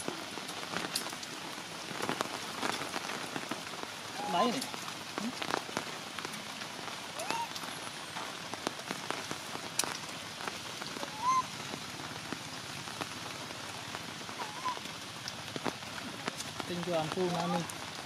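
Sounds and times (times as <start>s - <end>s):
heavy rain dripping: 0.0s - 18.0s
short high rising calls: 11.0s - 11.5s.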